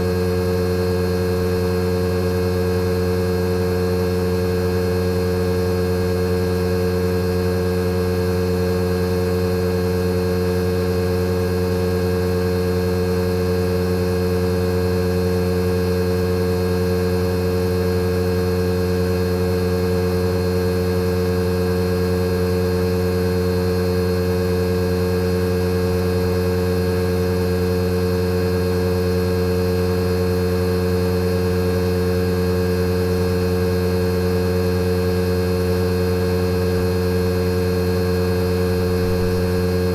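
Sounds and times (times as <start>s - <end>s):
air conditioner unit humming: 25.6s - 27.1s, 34.9s - 39.9s.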